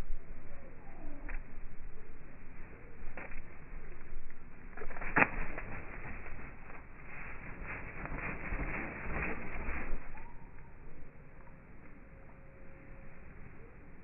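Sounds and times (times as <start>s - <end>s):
slowed-down birds: 0.0s - 14.0s
soft evenly spaced pulses: 5.8s - 14.0s.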